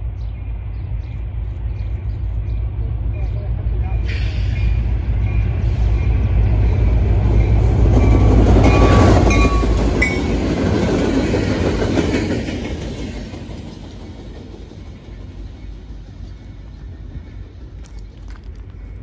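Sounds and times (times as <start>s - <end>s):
diesel locomotive rumble: 0.0s - 19.0s
train wheels clacking on rails: 3.9s - 17.9s.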